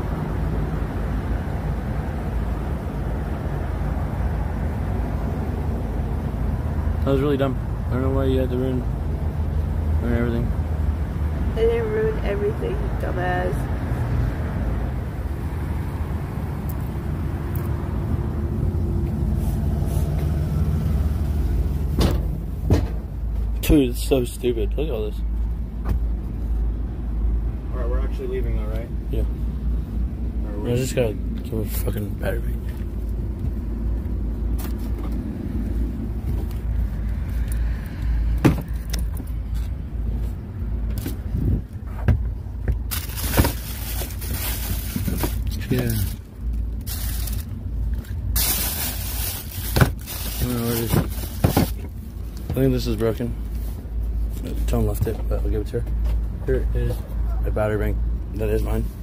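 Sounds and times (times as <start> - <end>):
rustling handling noise: 42.7 - 55.1.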